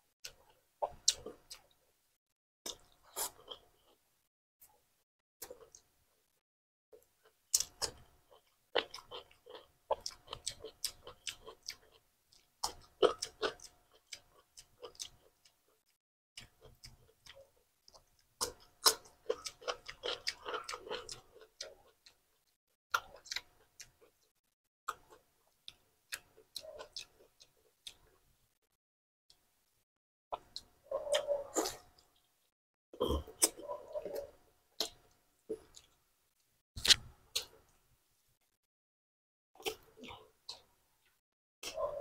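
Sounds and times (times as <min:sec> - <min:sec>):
crunching and chewing cucumber: 0:07.5 - 0:15.6, 0:16.4 - 0:24.3.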